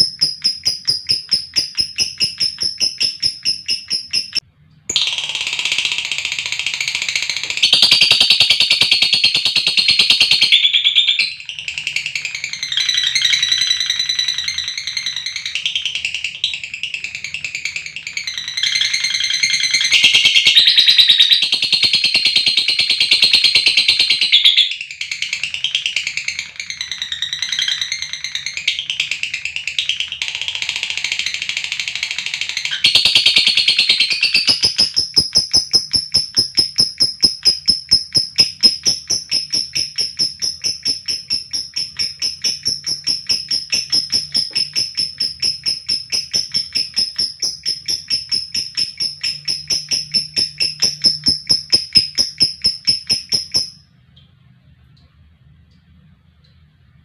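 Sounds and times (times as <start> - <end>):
lovebird trill of sharp high notes: 0.0 - 5.6, 32.7 - 53.8
lovebird warbling chatter: 0.0 - 15.6, 32.4 - 53.8.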